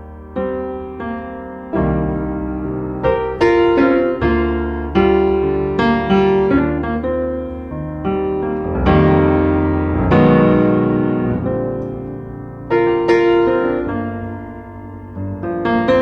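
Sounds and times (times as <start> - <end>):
piano music: 7.2 - 16.0.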